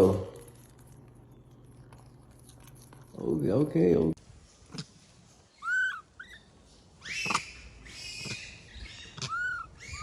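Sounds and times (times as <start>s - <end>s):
high arched animal chirps: 5.5s - 10.0s
harsh animal cry: 7.0s - 10.0s.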